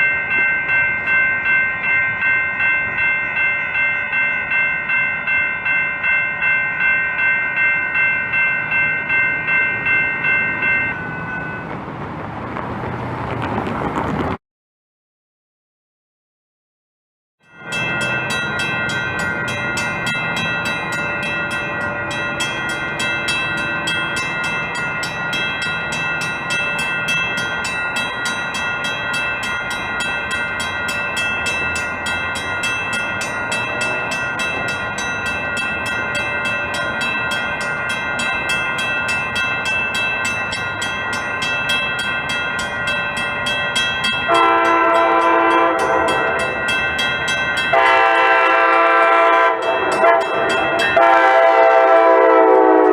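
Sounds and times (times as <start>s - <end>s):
constant ringing tones: 0.0s - 11.7s, 17.4s - 52.2s
train rumbling on tracks: 0.0s - 14.4s, 17.4s - 52.9s
train horn blast: 44.3s - 46.6s, 47.7s - 52.9s.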